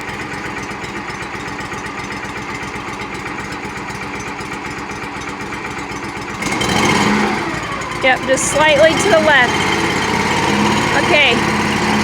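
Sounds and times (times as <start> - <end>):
backhoe engine idling: 0.0 - 12.0.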